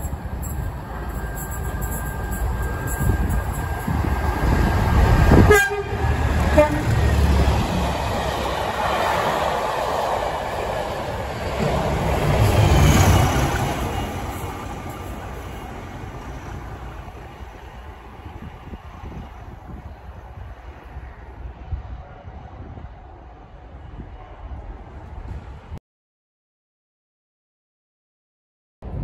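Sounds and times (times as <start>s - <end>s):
diesel train passing: 0.0s - 25.8s
train horn toots: 5.3s - 7.1s.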